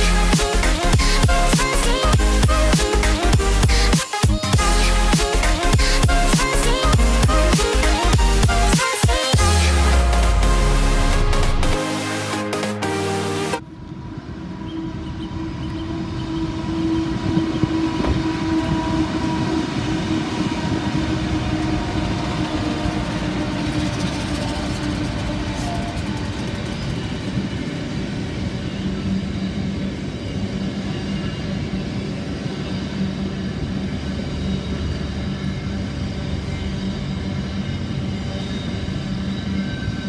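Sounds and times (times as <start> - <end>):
diesel locomotive engine drone: 0.0 - 40.0
train wheels on rails: 13.6 - 40.0.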